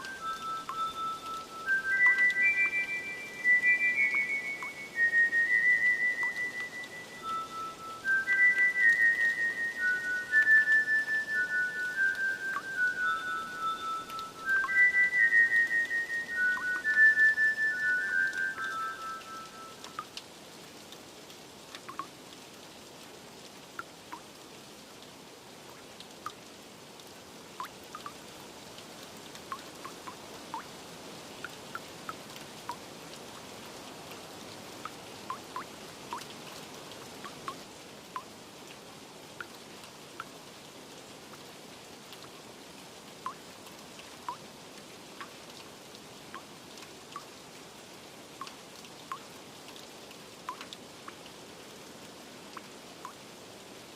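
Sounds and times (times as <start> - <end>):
water drips landing: 0.0 - 20.3, 20.9 - 22.2, 25.7 - 30.7, 31.4 - 38.4, 43.2 - 47.4, 48.4 - 51.4
steady rain: 0.0 - 53.9.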